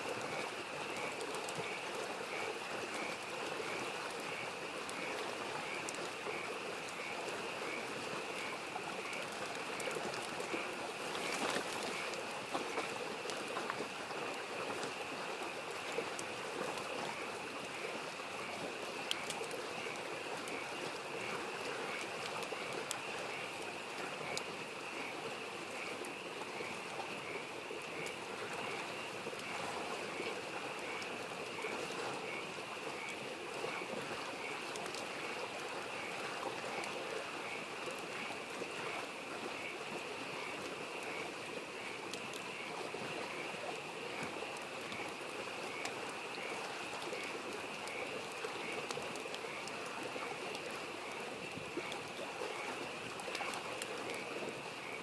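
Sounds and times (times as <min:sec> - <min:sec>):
small stream babbling: 0:00.0 - 0:55.0
campfire crackling: 0:00.1 - 0:55.0
frogs calling: 0:00.2 - 0:55.0.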